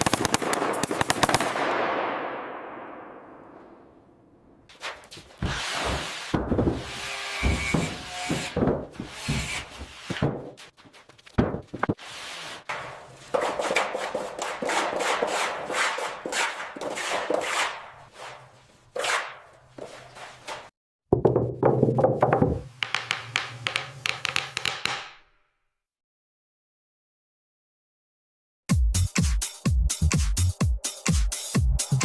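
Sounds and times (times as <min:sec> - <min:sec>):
scraping and knocking on wood: 0:04.7 - 0:12.0.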